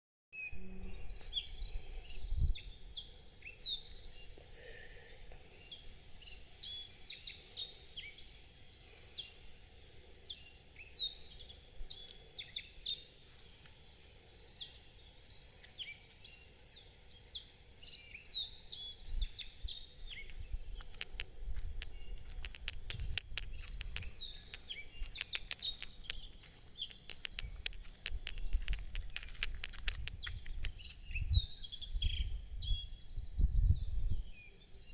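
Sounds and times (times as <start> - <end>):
birds singing in chorus: 0.4 - 34.9
fast clicks: 20.7 - 31.0.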